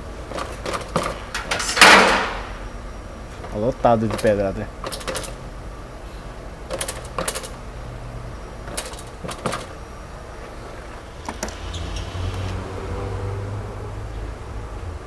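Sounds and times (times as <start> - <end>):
low workshop hum: 0.0 - 15.0
plastic clicks and clatters: 3.3 - 5.4, 6.7 - 7.6.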